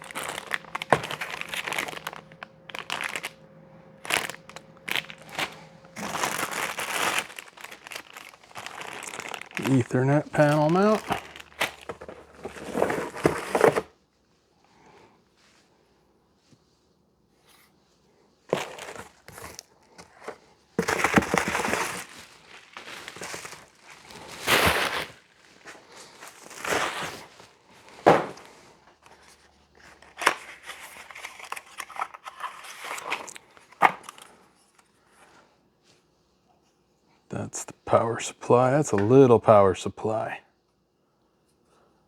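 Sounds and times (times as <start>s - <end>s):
packaging crinkling and tearing: 0.0s - 13.9s, 18.5s - 34.4s.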